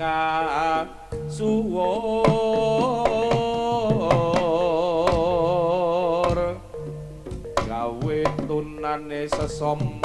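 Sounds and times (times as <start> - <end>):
wavering melodic line: 0.0 - 10.0
drum strokes: 2.2 - 10.0.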